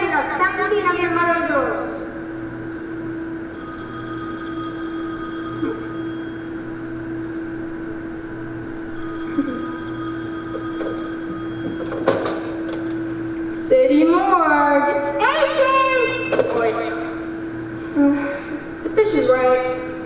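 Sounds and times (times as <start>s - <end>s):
telephone ringing: 3.5s - 7.6s, 8.9s - 13.2s.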